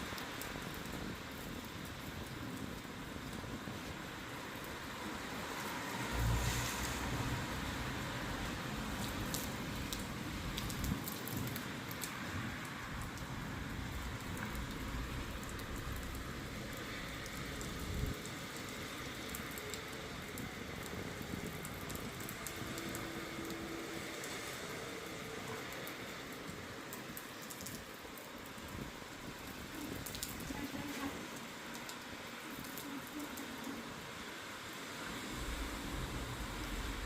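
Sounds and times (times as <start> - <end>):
raindrops ticking on surfaces: 0.0 - 37.0
steady rain falling: 0.0 - 37.0
low rumble: 35.1 - 37.0.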